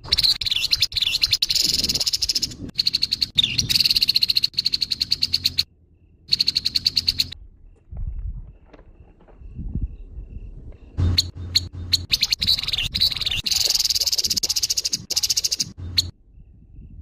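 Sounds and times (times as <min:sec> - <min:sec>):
bird harsh calls and rattle: 0:00.0 - 0:05.7, 0:06.3 - 0:07.4, 0:10.8 - 0:16.1.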